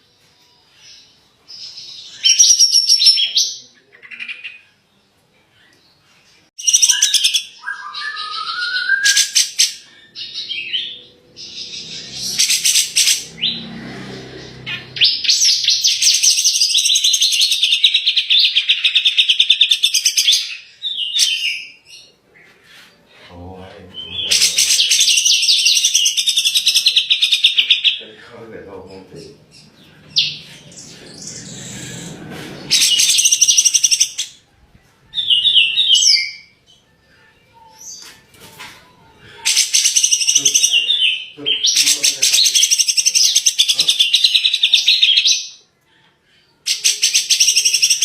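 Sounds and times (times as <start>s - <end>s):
bulbul singing whistled phrases: 6.6s - 13.5s, 39.4s - 45.6s
bird trilling: 6.6s - 22.1s, 23.9s - 34.4s, 39.4s - 45.6s, 46.6s - 48.0s.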